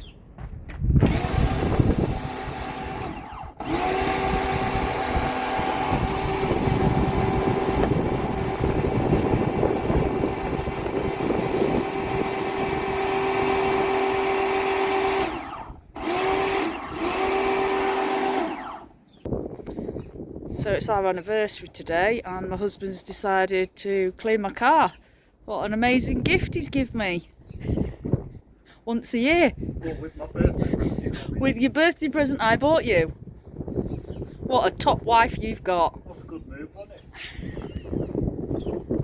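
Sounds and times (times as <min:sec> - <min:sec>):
electric pressure washer running: 0:01.0 - 0:19.0.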